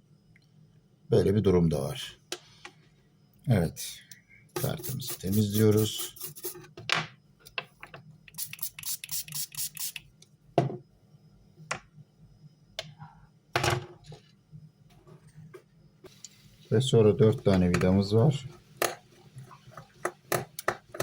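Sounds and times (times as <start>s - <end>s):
faint low hum: 0.0s - 21.0s
brush scrubbing circuit board: 4.6s - 6.6s, 8.4s - 10.0s.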